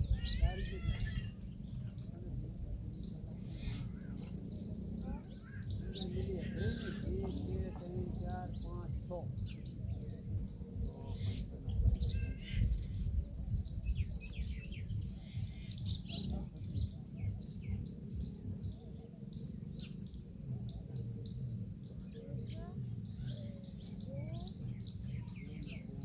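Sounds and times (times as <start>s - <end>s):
small birds chirping: 0.0s - 26.0s
steady low rumble: 1.3s - 26.0s.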